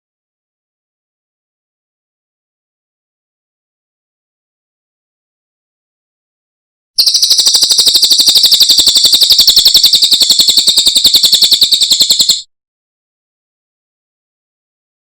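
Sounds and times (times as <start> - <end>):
songbird trilling: 7.0 - 12.4.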